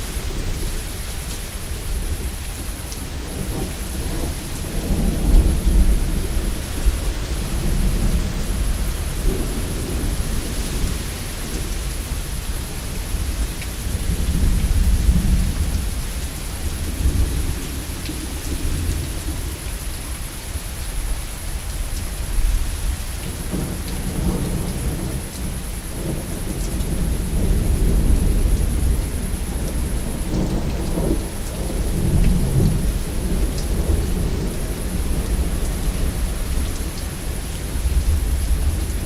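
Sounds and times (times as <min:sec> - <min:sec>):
steady rain falling: 0:00.0 - 0:39.0
thunder rumbling: 0:23.3 - 0:39.0.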